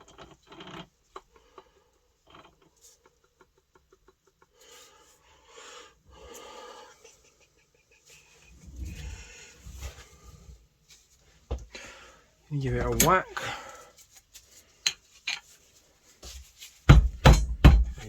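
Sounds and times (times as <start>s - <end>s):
metal parts clicking and rattling: 12.7s - 13.2s.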